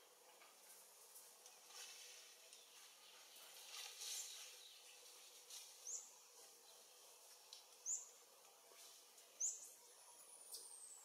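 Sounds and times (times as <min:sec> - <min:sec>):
faint outdoor background hiss: 0:00.0 - 0:11.0
small bird chirping: 0:05.8 - 0:06.9, 0:07.7 - 0:08.2, 0:09.3 - 0:11.0.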